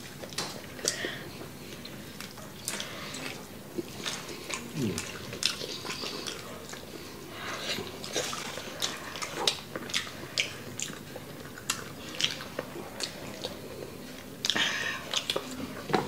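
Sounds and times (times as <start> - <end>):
chewing: 0.0 - 16.0.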